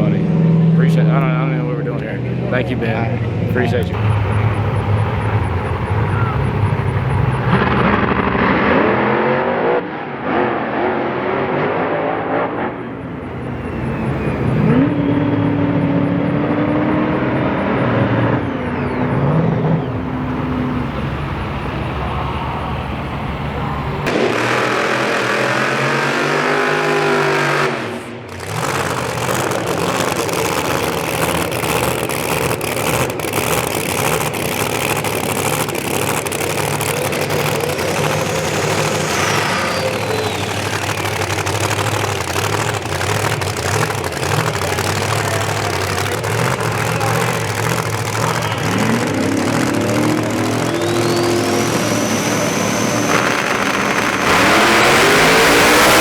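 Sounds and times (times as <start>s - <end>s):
drag racing car engines: 0.0s - 56.0s
high whine rising in pitch: 34.6s - 44.0s, 46.8s - 56.0s.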